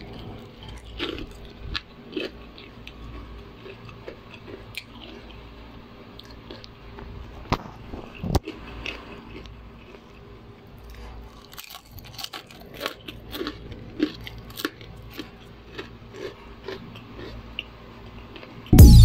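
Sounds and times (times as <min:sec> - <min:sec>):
crunching of fried food: 0:00.0 - 0:18.7
loud electronic music: 0:18.8 - 0:19.0.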